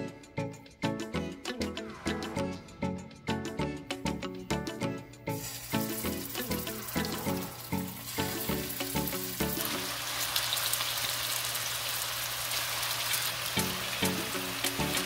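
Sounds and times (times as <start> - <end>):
background music: 0.0 - 10.3, 13.4 - 15.0
meatballs sizzling in oil: 5.3 - 15.0.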